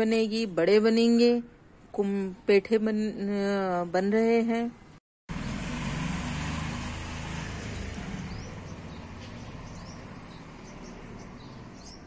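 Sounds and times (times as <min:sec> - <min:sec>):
small birds chirping: 0:07.5 - 0:12.0.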